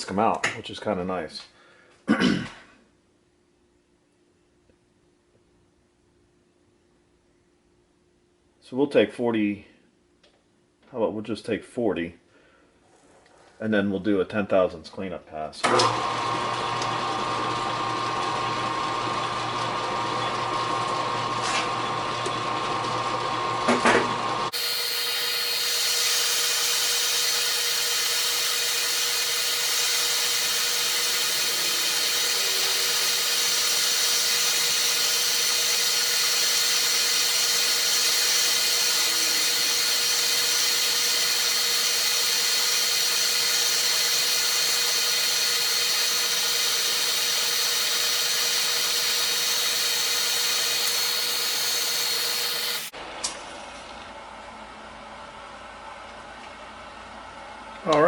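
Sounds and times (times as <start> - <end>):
metal lathe whining: 15.8 - 52.9.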